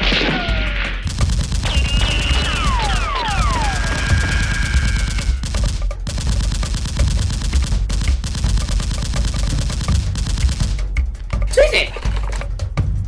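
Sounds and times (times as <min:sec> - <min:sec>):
automatic gunfire: 0:01.0 - 0:10.8.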